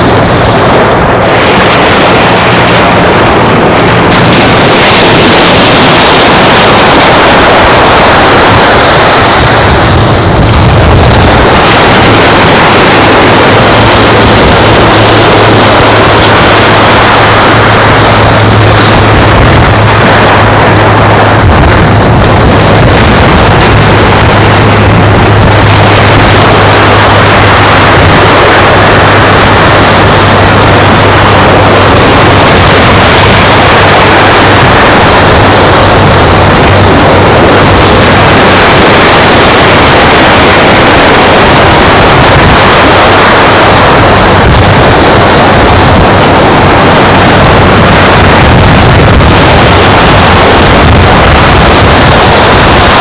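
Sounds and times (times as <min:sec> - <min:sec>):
steady low hum: 0:00.0 - 0:53.0
surf: 0:00.0 - 0:53.0
wind: 0:00.0 - 0:53.0.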